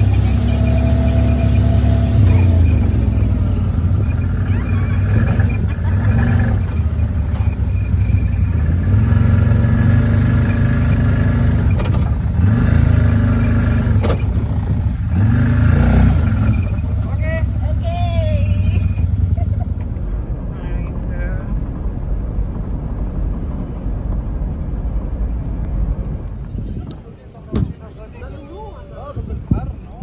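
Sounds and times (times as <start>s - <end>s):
vehicle engine revving: 0.0s - 20.3s.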